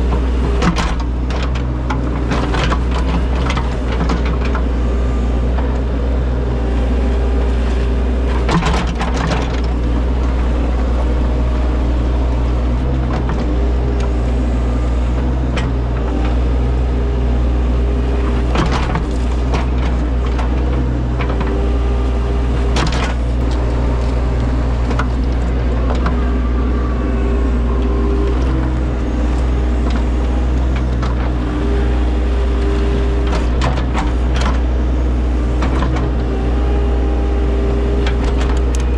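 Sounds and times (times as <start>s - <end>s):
engine whine: 0.0s - 38.9s
machine engine running under load: 6.8s - 16.9s, 17.7s - 38.9s.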